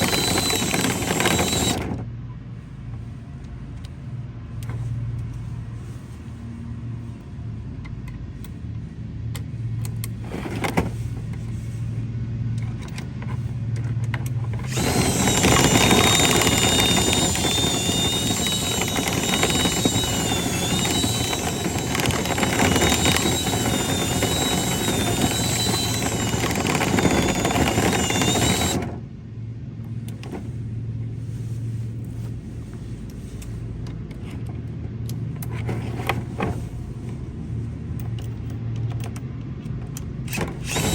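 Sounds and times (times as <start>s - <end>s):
high-speed motor whining: 0.0s - 2.0s, 14.5s - 29.1s, 40.3s - 40.9s
steady low hum: 0.0s - 38.6s.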